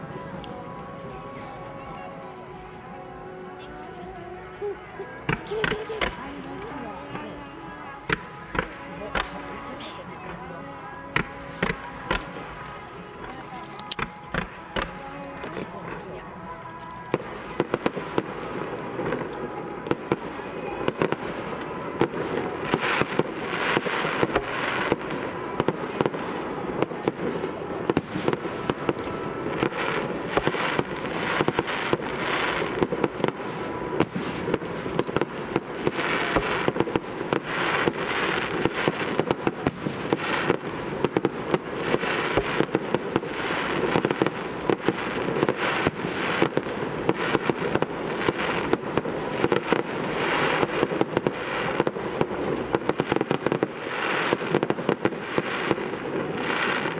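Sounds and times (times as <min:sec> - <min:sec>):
fireworks popping and crackling: 0:04.6 - 0:56.9.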